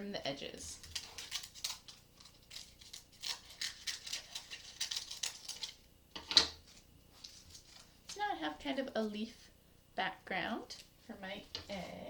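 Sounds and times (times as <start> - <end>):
scissors cutting cardboard: 0.8 - 7.9.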